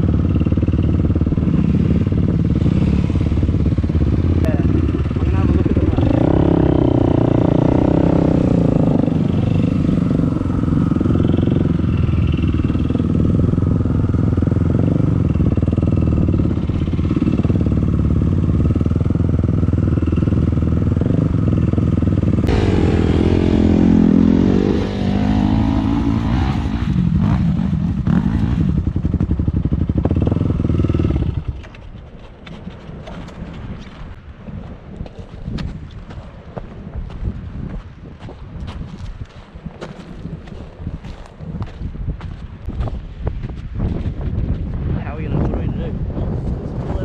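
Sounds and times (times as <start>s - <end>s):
dirt bike engine revving: 0.0s - 31.6s.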